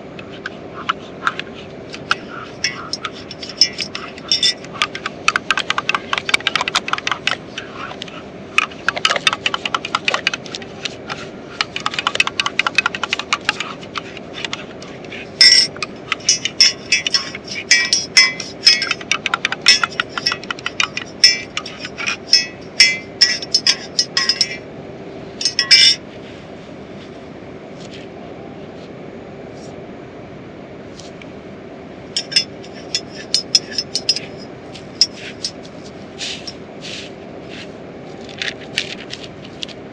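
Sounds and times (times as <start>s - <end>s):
metal utensil clinking on cookware: 2.1s - 5.1s, 15.4s - 24.6s, 25.4s - 26.0s, 32.2s - 35.6s.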